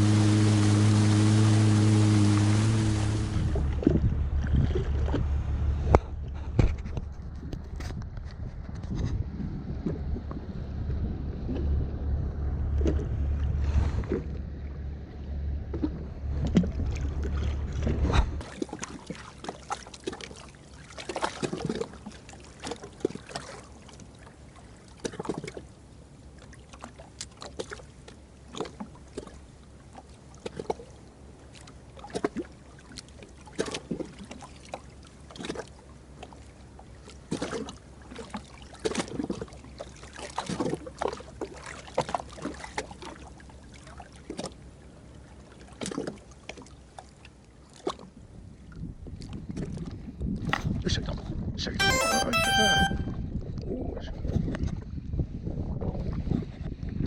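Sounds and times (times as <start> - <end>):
waves lapping against hull: 0.0 - 51.2
low rumble: 2.4 - 18.4.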